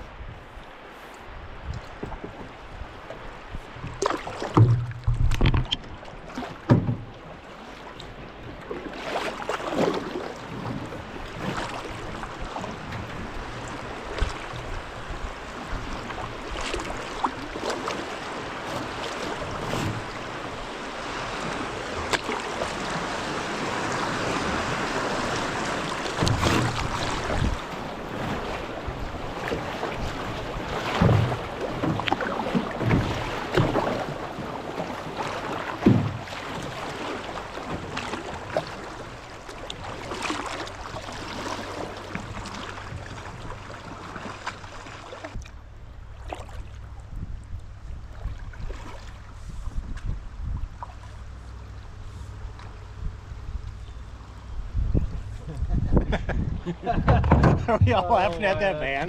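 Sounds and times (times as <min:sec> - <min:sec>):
rushing river water: 0:00.0 - 0:47.1, 0:47.8 - 0:49.4
paddle splashes: 0:00.0 - 0:54.2
knocks against canoe hull: 0:03.8 - 0:05.9, 0:06.6 - 0:07.2, 0:18.6 - 0:20.2, 0:26.1 - 0:27.6, 0:30.8 - 0:34.1, 0:35.5 - 0:36.7, 0:56.9 - 0:58.4
wind buffeting microphone: 0:22.8 - 0:32.1, 0:46.8 - 0:50.9, 0:54.4 - 0:58.8.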